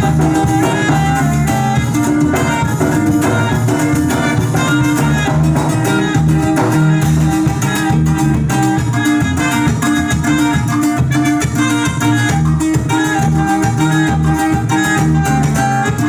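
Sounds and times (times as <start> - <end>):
bass: 0.0 - 16.0
drum kit: 0.0 - 16.0
saxophone melody: 0.0 - 16.0.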